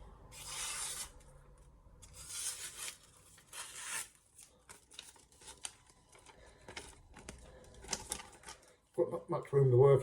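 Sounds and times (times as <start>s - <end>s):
knife slicing tissue paper: 0.3s - 1.2s
paper rustling and clicking: 4.4s - 8.7s.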